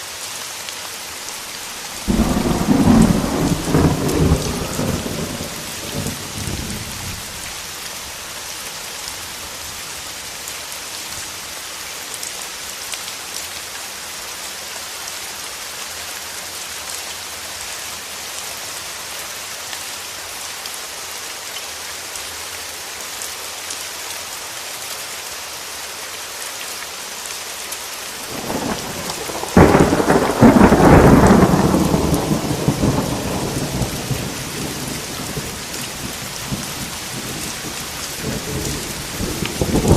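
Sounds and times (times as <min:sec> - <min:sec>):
steady rain: 0:00.0 - 0:39.9
thunderclap: 0:02.0 - 0:07.2, 0:28.3 - 0:39.9.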